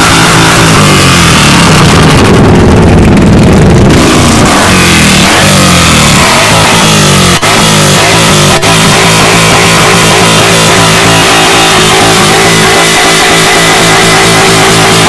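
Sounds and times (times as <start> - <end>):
car engine revving: 0.0 - 15.0
rock music with electric guitar: 0.0 - 15.0.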